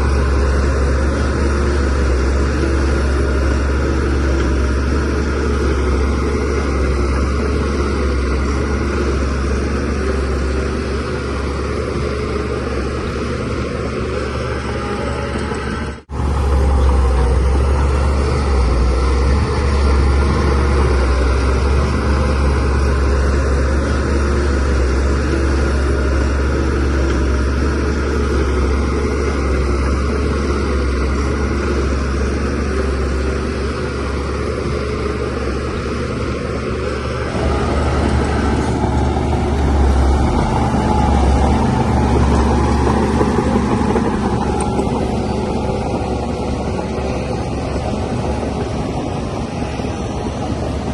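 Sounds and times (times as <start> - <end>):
bulldozer diesel engine rumbling: 0.0 - 50.9.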